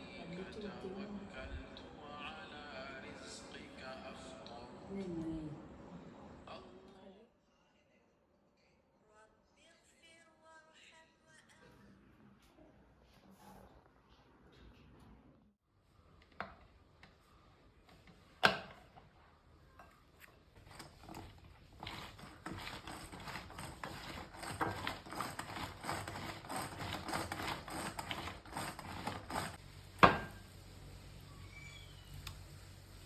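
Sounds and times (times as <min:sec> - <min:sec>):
fast tapping and scraping: 0:20.6 - 0:29.6.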